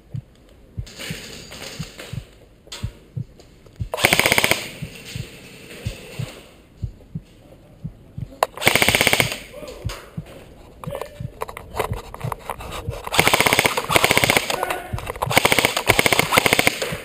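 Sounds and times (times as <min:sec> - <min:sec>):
low heartbeat-like thump: 0:00.0 - 0:01.2, 0:01.8 - 0:04.0, 0:04.8 - 0:08.4, 0:09.8 - 0:10.5, 0:11.1 - 0:13.1
airsoft rifle full-auto burst: 0:04.0 - 0:04.7, 0:08.6 - 0:09.4, 0:13.1 - 0:14.6, 0:15.3 - 0:16.9.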